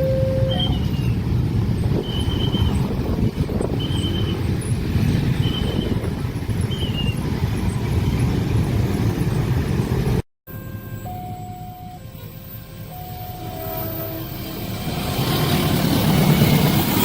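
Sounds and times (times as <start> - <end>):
short high beep: 0.0 - 1.0
train wheels rumbling on rail: 0.0 - 10.2, 12.1 - 17.0.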